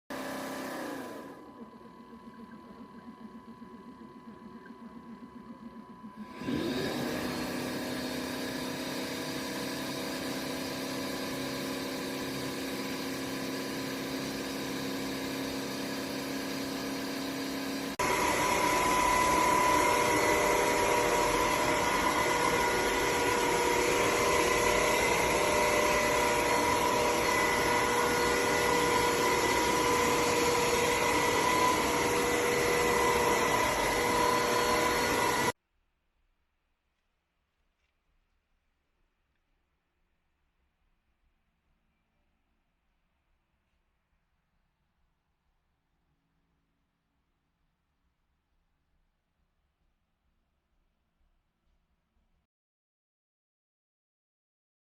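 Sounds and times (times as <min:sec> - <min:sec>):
vacuum cleaner motor hum and whine: 0:00.1 - 0:35.6.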